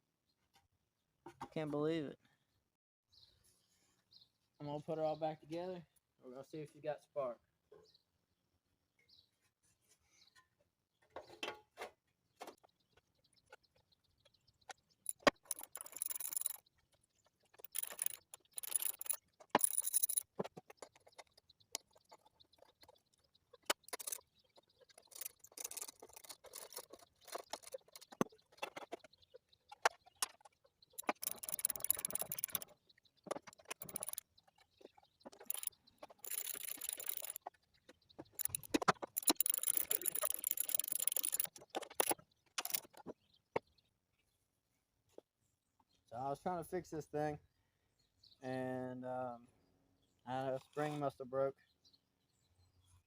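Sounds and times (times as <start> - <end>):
metal parts and tools clinking: 15.0 - 29.0, 29.8 - 37.5, 38.2 - 43.1.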